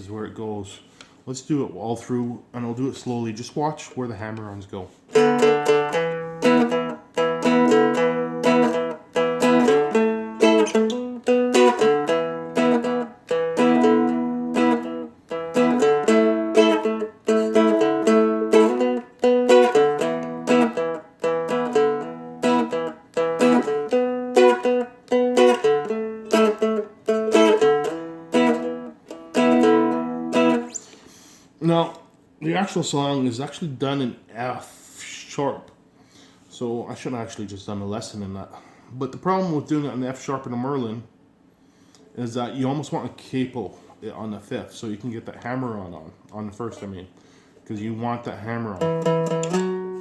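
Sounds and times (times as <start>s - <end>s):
strummed fretted dulcimer: 5.1s - 30.7s, 48.8s - 50.0s.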